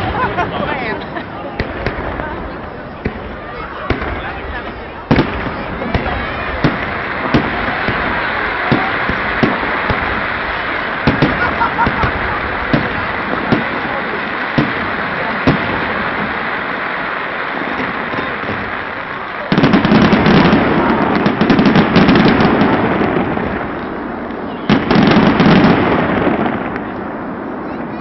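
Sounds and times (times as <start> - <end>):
fireworks bangs: 0.0 - 28.0
rapid crackling fireworks: 0.0 - 28.0.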